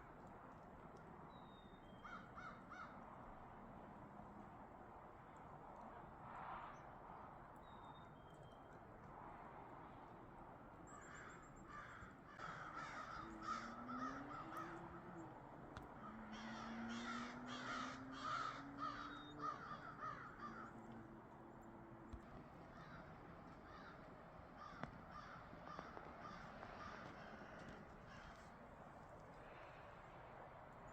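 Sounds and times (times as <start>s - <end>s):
crows cawing: 2.0s - 3.0s, 10.9s - 21.2s, 22.6s - 28.6s.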